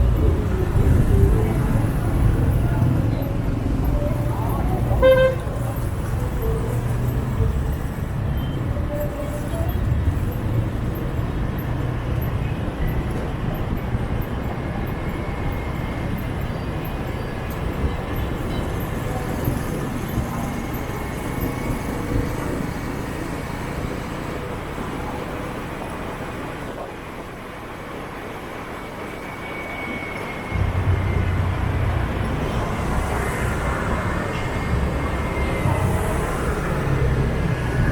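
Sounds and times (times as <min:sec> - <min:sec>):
low engine rumble: 0:00.0 - 0:25.9, 0:30.5 - 0:37.9
street traffic engines: 0:00.0 - 0:37.9.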